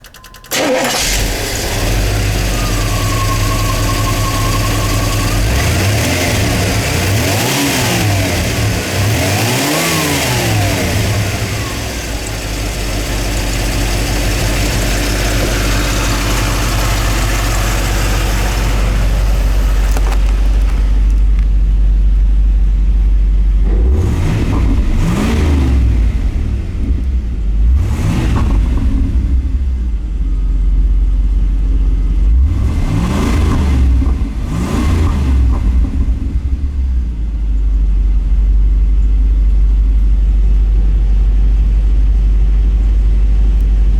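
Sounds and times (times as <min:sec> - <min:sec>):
car engine idling and revving: 0:00.0 - 0:43.9.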